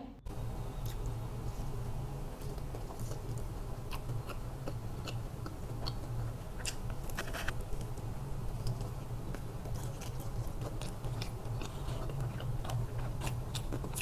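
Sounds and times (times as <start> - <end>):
person chewing crispy chicken: 8.6 - 14.0.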